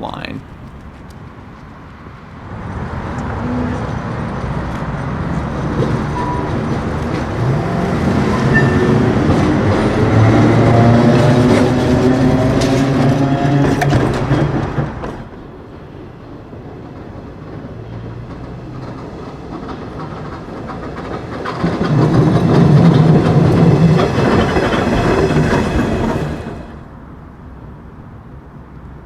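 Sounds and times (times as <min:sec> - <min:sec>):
streetcar tones: 0:00.0 - 0:29.0
wheels clattering on track: 0:00.4 - 0:27.0.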